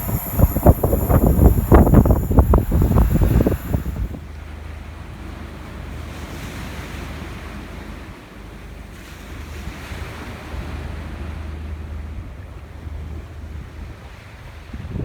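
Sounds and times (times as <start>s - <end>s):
wind on microphone: 0.0s - 4.4s, 12.1s - 15.0s
sea waves washing: 0.0s - 14.7s.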